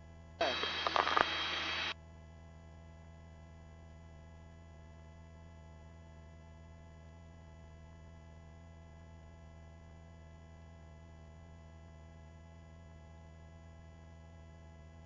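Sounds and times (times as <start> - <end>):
faint helicopter cabin drone: 0.4 - 2.0.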